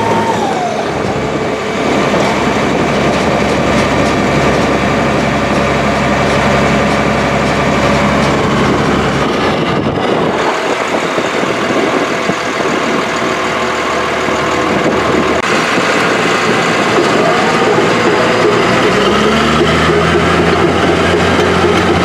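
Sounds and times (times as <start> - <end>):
diesel engine rumbling: 0.0 - 22.0.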